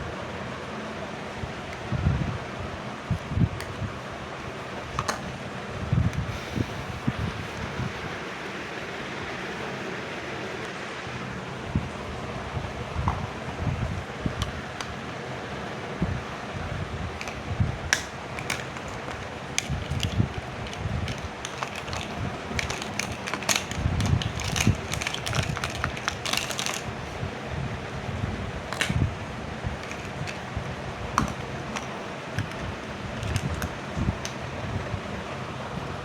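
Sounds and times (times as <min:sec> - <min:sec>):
steady background hiss: 0:00.0 - 0:36.0
plastic toy pieces clicking: 0:17.2 - 0:26.9, 0:28.7 - 0:29.0, 0:29.8 - 0:30.5, 0:31.2 - 0:32.6, 0:33.2 - 0:34.4.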